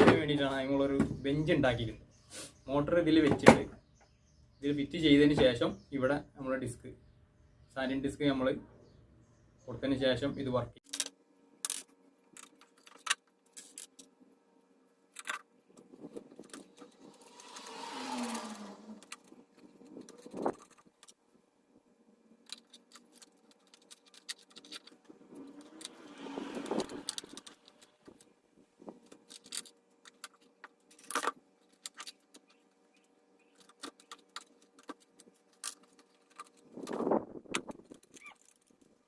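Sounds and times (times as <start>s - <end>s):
metal rattling scrape: 15.9s - 20.9s, 23.0s - 28.2s.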